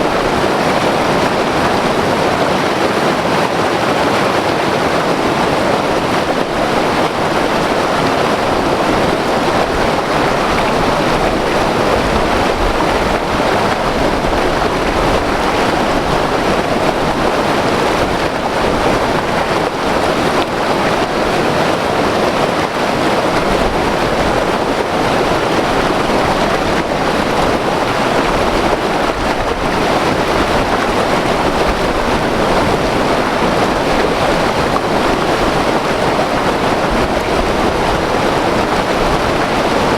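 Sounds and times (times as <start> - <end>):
river rushing over rapids: 0.0 - 39.9.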